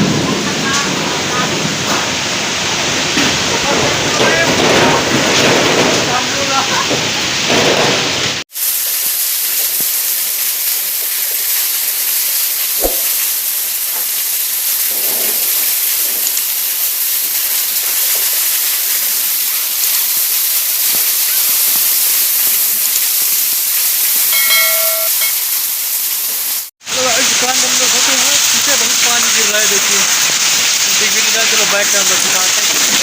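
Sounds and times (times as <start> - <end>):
heavy rain falling: 0.0 - 33.0
knock: 12.8 - 13.1
short pitched tone: 24.3 - 25.6.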